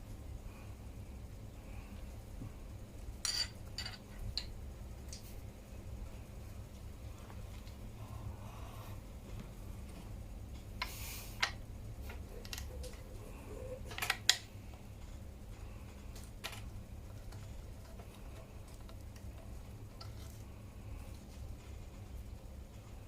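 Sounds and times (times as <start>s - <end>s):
faint steady hum: 0.0s - 23.0s
metal tools clinking on bike parts: 3.2s - 4.5s.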